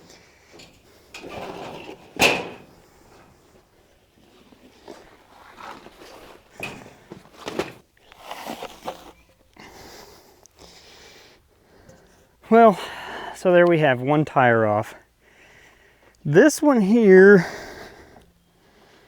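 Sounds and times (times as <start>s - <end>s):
rubber tire knocks and scrapes: 0.5s - 3.6s.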